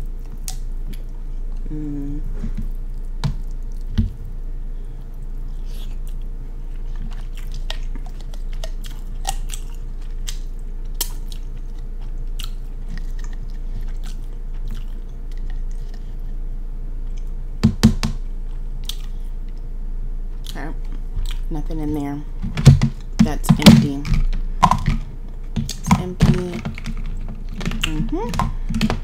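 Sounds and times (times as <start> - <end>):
steady low hum: 0.0 - 29.0
chewing: 2.2 - 4.4, 5.0 - 16.4, 18.5 - 19.7, 20.4 - 21.5.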